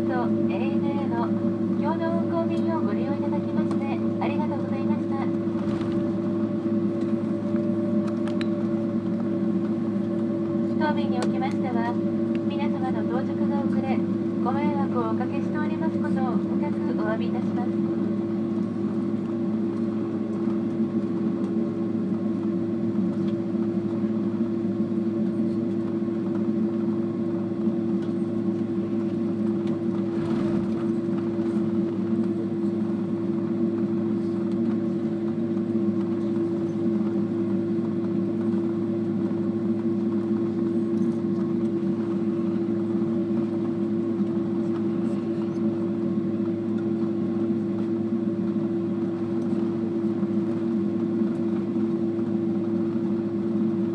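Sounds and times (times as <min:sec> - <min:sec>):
jet engines idling drone: 0:00.0 - 0:53.9.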